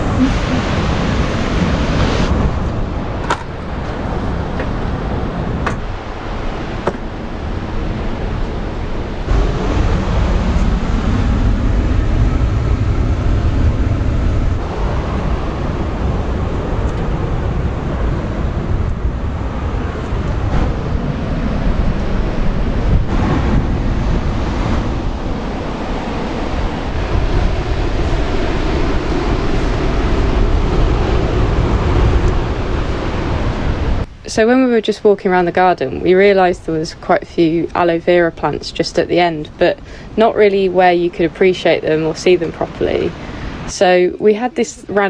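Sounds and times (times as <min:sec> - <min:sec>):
wind buffeting microphone: 0:00.0 - 0:45.0
sharp knocks: 0:03.2 - 0:04.9, 0:05.6 - 0:05.9, 0:06.8 - 0:07.1.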